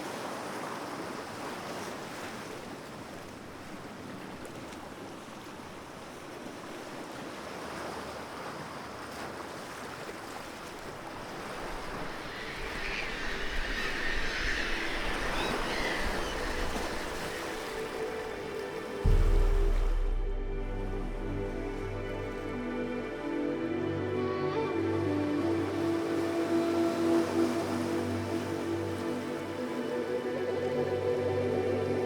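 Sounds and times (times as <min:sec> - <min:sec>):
waves breaking on rocky shore: 0:00.0 - 0:20.2.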